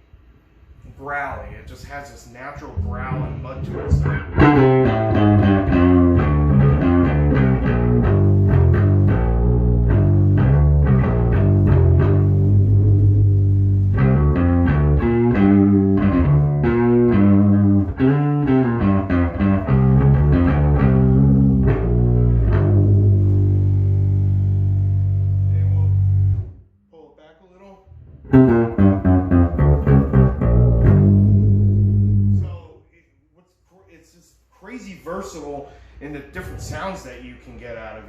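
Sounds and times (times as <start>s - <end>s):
growly electric bass notes: 2.5s - 26.6s, 27.9s - 32.6s, 36.1s - 37.4s.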